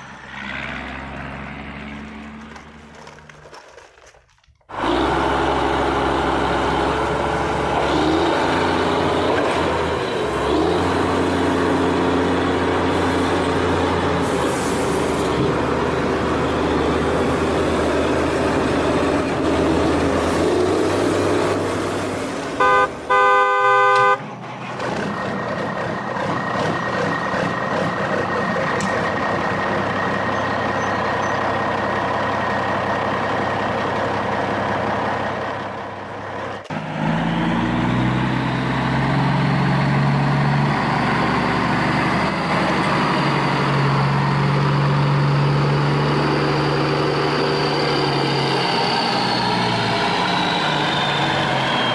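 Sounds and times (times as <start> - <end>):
engine running: 0.0 - 51.9
vehicle horn: 22.6 - 24.3.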